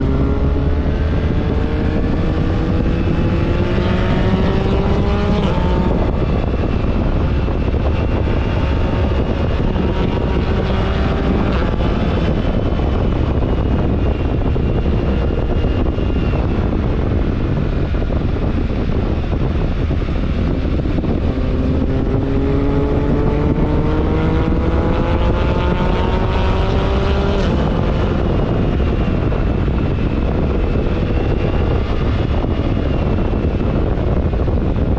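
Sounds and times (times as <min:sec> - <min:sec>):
wind rushing: 0:00.0 - 0:34.9.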